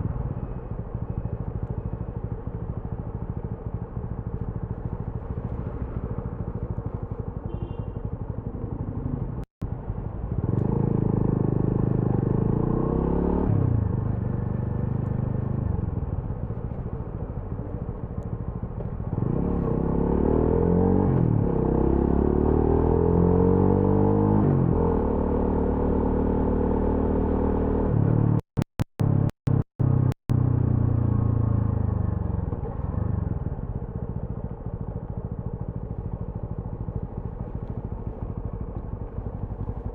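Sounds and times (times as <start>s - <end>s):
motorcycle engine revving: 10.4s - 16.3s, 18.8s - 39.9s.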